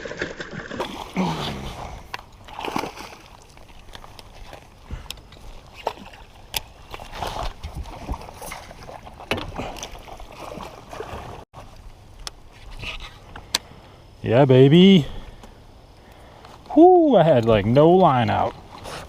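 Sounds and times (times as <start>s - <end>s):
water splashing around a kayak: 0.0s - 13.2s.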